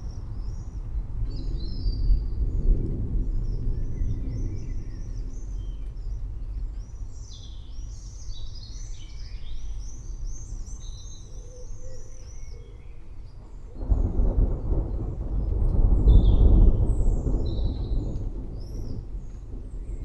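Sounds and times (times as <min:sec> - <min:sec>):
thunder rumbling: 0:00.1 - 0:06.9, 0:13.4 - 0:20.0
small birds chirping: 0:03.4 - 0:15.1.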